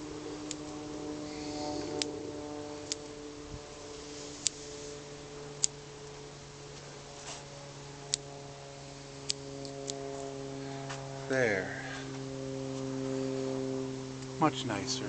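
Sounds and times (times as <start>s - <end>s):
faint steady hum: 0.0s - 15.0s
scissors snipping: 0.4s - 0.8s.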